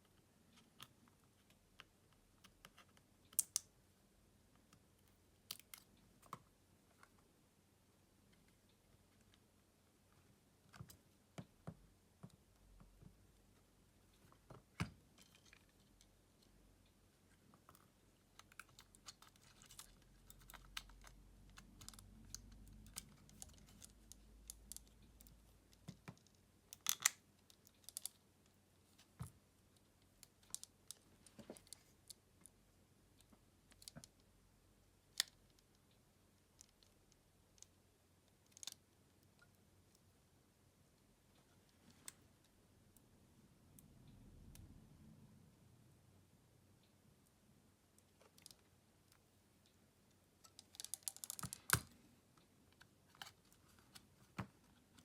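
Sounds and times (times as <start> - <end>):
faint low rumble: 39.2 - 50.4.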